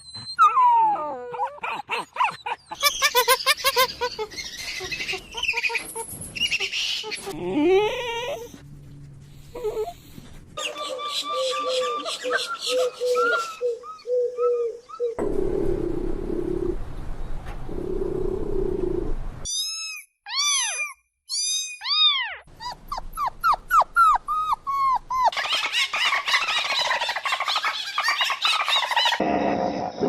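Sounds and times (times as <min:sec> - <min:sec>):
high arching animal calls: 0:01.4 - 0:08.6, 0:24.0 - 0:29.2
animal growling: 0:15.2 - 0:17.0, 0:17.6 - 0:19.2, 0:29.2 - 0:30.0.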